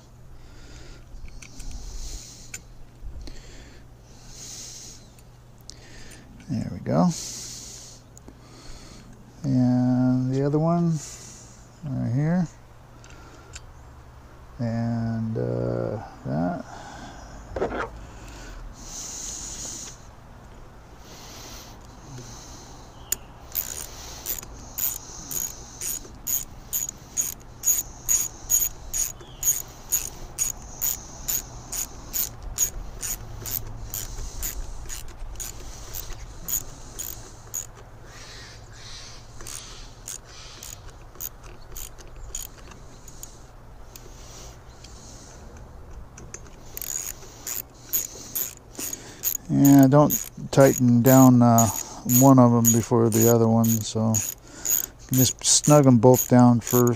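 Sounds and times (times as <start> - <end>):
hand tool clicking: 23.1 - 37.9, 39.4 - 44.2, 45.6 - 56.9.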